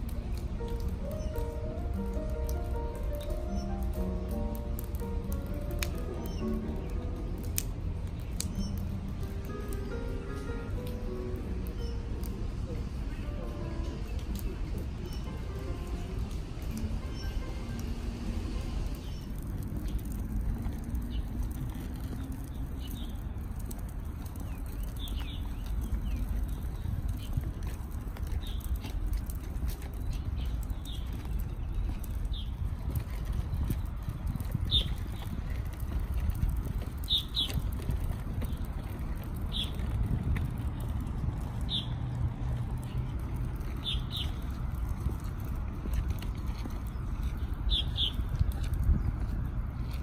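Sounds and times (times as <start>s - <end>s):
small birds chirping: 0.0s - 18.0s, 18.8s - 50.0s
low outdoor rumble: 0.0s - 50.0s
small bird chirping: 39.5s - 39.8s, 47.3s - 48.3s.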